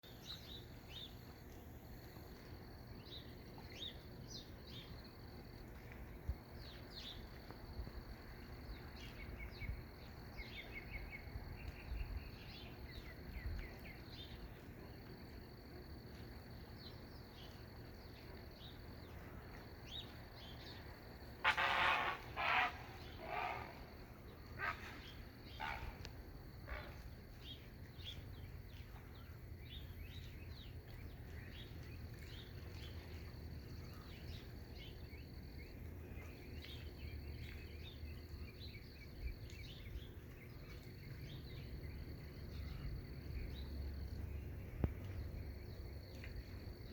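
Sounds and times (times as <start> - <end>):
low rumble of wind and water: 0.0 - 46.9
loud bird calls: 21.4 - 26.0.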